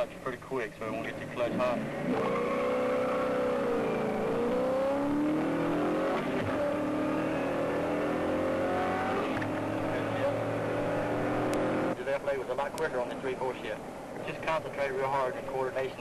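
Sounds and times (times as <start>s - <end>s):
car engine accelerating: 1.0s - 12.0s.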